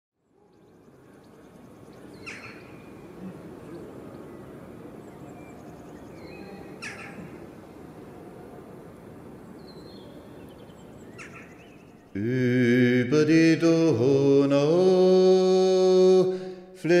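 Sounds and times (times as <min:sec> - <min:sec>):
bird chirps: 0:00.2 - 0:07.7, 0:09.5 - 0:12.2.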